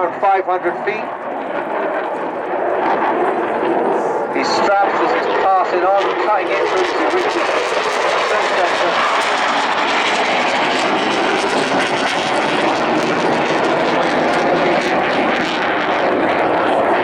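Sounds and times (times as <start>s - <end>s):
loud jet noise: 0.0s - 17.0s.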